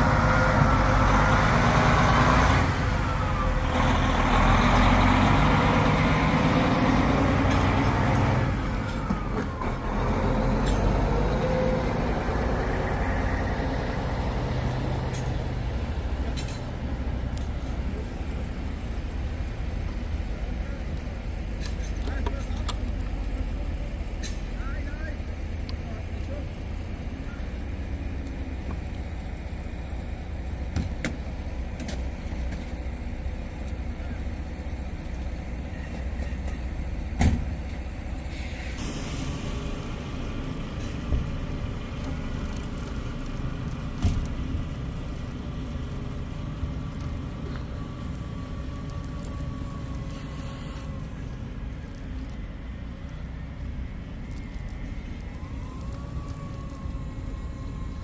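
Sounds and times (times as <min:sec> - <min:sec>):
truck engine rumbling: 0:00.0 - 0:58.0
burst of hiss: 0:38.2 - 0:40.0.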